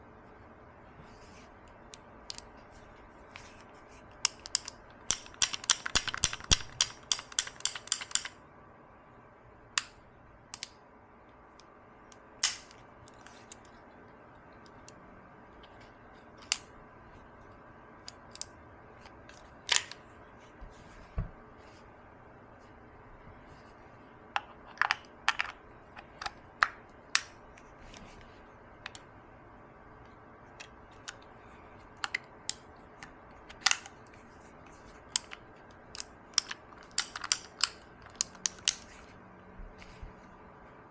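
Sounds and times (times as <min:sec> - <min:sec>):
revolver metal clicks and taps: 0:04.1 - 0:08.4, 0:09.8 - 0:10.8, 0:11.6 - 0:13.8, 0:36.0 - 0:38.9.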